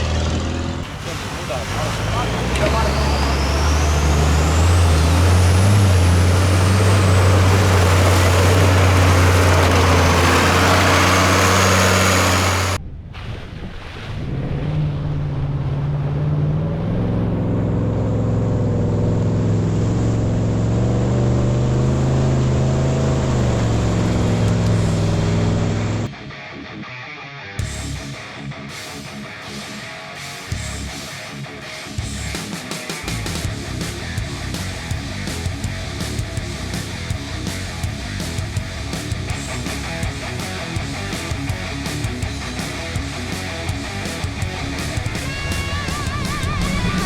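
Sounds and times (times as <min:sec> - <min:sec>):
loud truck engine labouring: 0:00.0 - 0:12.8, 0:14.6 - 0:26.1, 0:33.1 - 0:47.0
quieter engine wavering pitch: 0:00.0 - 0:12.9, 0:14.2 - 0:26.1, 0:41.9 - 0:47.0
high whistle: 0:45.2 - 0:47.0.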